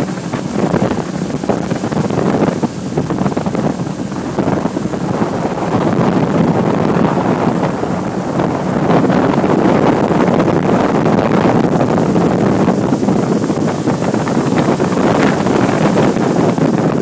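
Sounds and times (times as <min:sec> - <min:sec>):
boat motor running: 0:00.0 - 0:17.0
wind buffeting microphone: 0:00.0 - 0:17.0.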